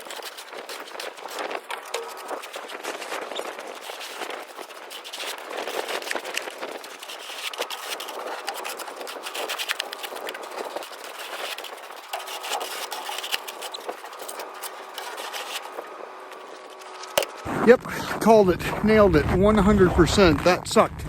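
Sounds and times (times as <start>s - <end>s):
shovel scraping snow and ice: 0.0s - 18.4s.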